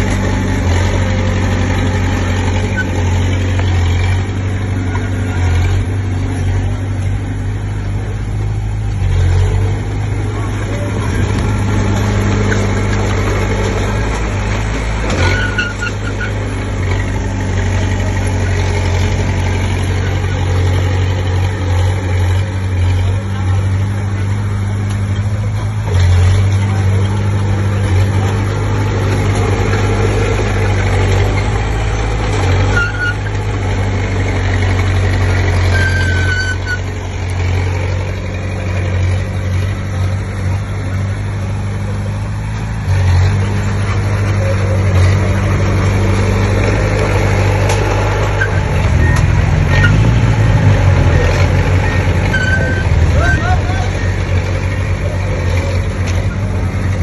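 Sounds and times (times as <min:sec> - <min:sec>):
bulldozer diesel engine running: 0:00.0 - 0:57.0
short high squeaks: 0:15.1 - 0:16.4, 0:32.6 - 0:33.4, 0:35.6 - 0:37.0, 0:51.3 - 0:53.7.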